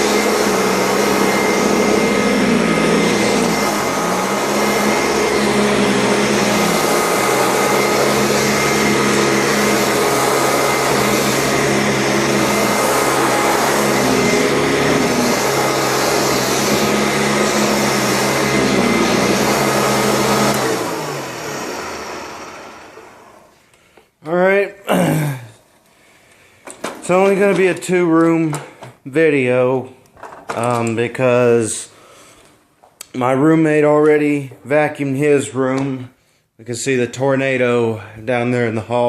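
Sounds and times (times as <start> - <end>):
vacuum motor winding down: 0.0 - 23.5
vacuum cleaner on carpet: 0.0 - 23.6.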